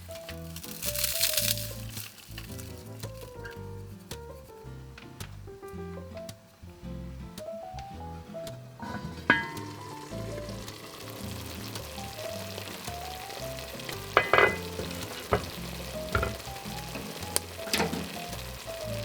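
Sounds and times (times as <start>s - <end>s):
food sizzling in a frying pan: 0.0s - 3.6s, 8.8s - 19.0s
utensil knocking against pan: 8.8s - 19.0s.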